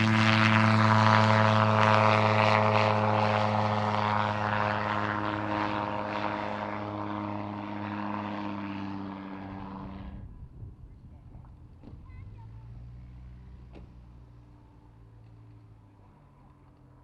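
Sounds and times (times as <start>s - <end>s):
propeller aircraft engine: 0.0s - 17.0s.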